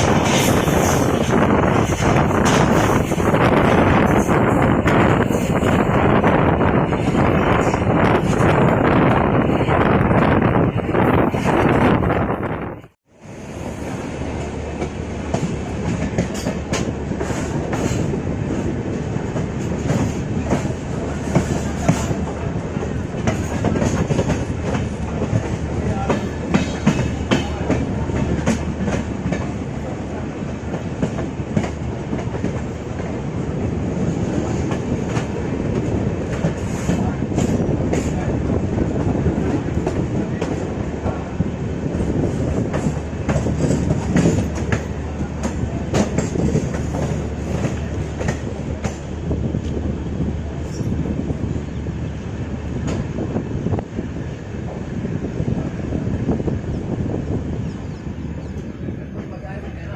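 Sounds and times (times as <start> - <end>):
train rumble: 0.0 - 59.9
train wheels clattering: 14.4 - 49.8.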